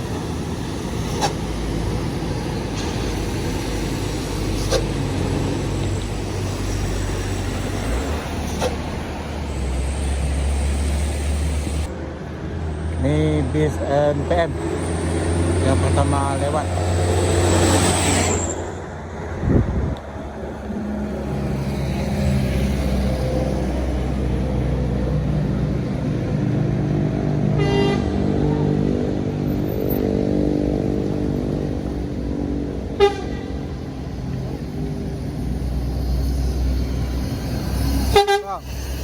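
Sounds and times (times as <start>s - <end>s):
diesel bus engine passing: 0.0s - 39.0s
bus horn toots: 27.4s - 29.0s, 32.9s - 33.8s, 38.1s - 38.6s.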